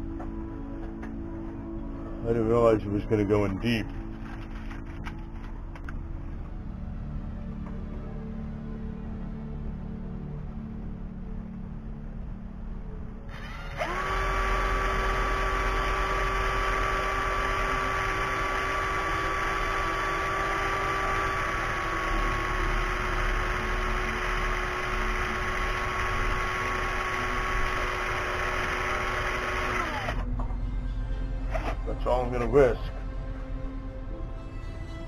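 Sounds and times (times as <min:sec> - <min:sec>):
cordless drill whining: 0:13.3 - 0:30.3.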